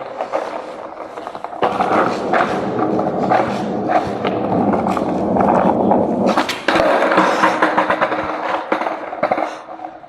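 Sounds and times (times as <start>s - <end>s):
skateboard wheels on rough pavement: 0.0s - 10.0s.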